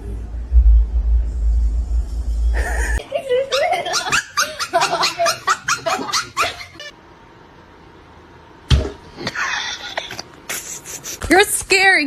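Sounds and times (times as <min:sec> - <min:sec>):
sudden thump: 0:00.5 - 0:03.0.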